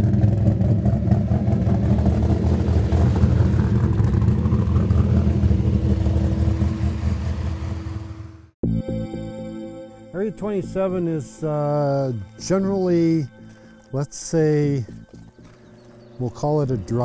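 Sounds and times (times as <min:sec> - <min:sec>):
deep car exhaust rumble: 0:00.0 - 0:08.5, 0:14.8 - 0:17.0
steady higher hum: 0:01.2 - 0:17.0.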